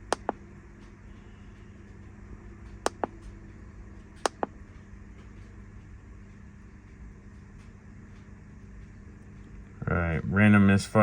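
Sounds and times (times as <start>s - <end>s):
quick clicks: 2.9s - 3.2s.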